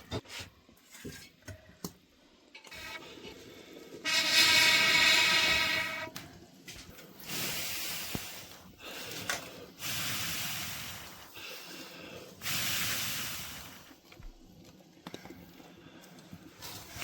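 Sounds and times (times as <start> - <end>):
hot cooking hissing: 2.7 - 14.4, 15.4 - 17.0.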